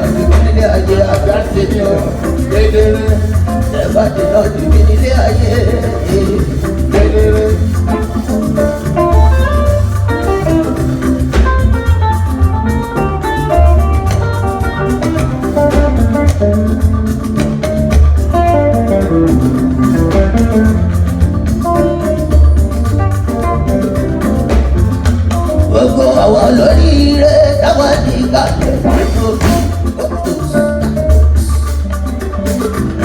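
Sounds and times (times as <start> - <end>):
picked guitar lines: 0.0 - 33.0
pulsing bass and drum beat: 0.0 - 33.0.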